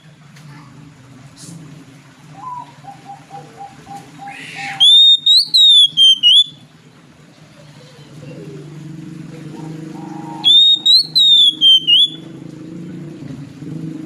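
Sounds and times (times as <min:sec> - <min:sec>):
bird singing: 0:02.3 - 0:06.7, 0:09.5 - 0:12.3.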